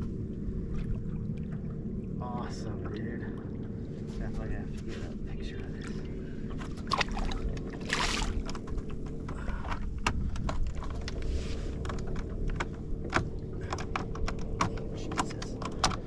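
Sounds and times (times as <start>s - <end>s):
boat motor droning: 0.0s - 16.0s
gear clicking and knocking: 8.3s - 16.0s.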